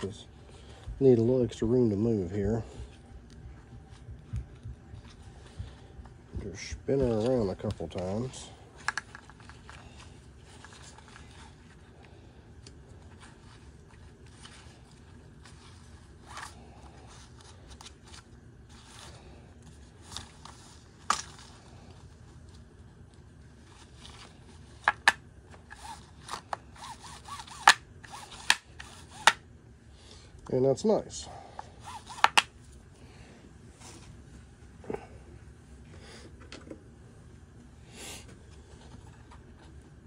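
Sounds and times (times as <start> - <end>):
plastic spool rubbing and scraping: 23.6 - 29.4, 31.8 - 32.5.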